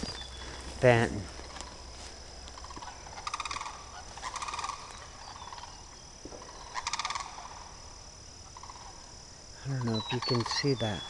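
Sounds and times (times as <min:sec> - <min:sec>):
bird rattling call: 0:02.6 - 0:05.8, 0:06.4 - 0:07.7, 0:08.6 - 0:08.9.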